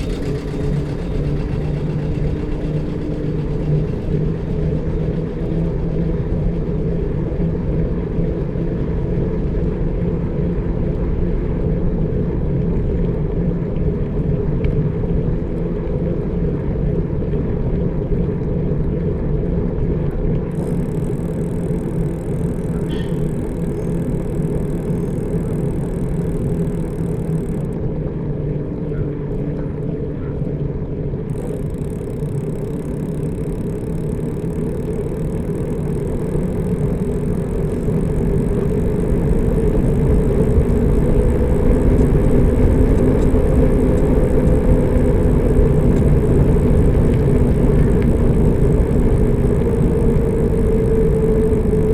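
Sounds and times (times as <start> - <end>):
vehicle rumbling on road: 0.0 - 9.8, 20.3 - 51.9.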